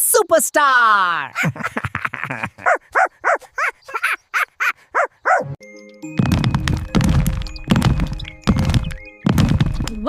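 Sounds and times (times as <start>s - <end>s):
cartoon dog barking: 2.6s - 5.6s
heavy regular thuds: 6.2s - 10.0s.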